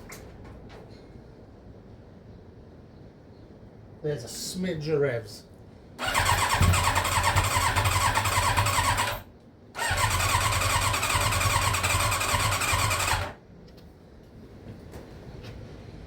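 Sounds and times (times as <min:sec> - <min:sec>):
motorcycle engine cranking: 0:06.0 - 0:09.2, 0:09.8 - 0:13.4.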